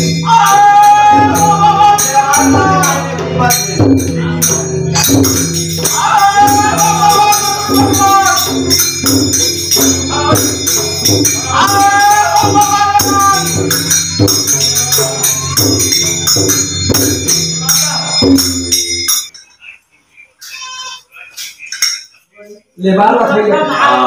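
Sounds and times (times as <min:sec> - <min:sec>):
drum rhythm: 0:00.0 - 0:19.5
hand cymbals: 0:00.0 - 0:19.8, 0:20.4 - 0:22.6
person singing long phrases: 0:00.2 - 0:03.6, 0:05.8 - 0:08.7, 0:11.4 - 0:13.6.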